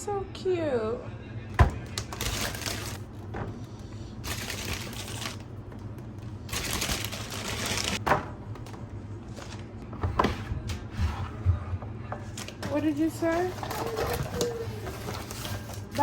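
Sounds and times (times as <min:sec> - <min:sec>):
plastic packaging rustling: 0:01.8 - 0:08.0, 0:12.2 - 0:16.0.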